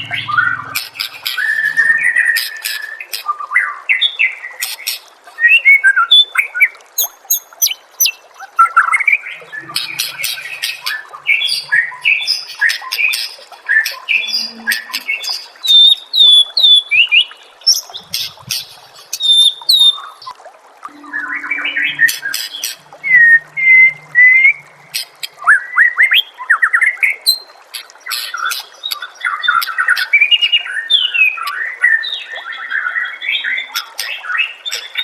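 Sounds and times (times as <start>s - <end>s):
bird singing whistled song: 0.0s - 3.1s, 19.2s - 20.1s.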